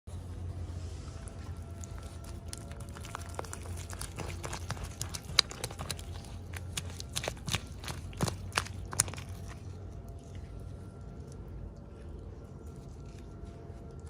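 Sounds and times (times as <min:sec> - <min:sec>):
steady low hum: 0:00.1 - 0:14.0
plastic packaging clicks and crinkles: 0:01.8 - 0:09.7.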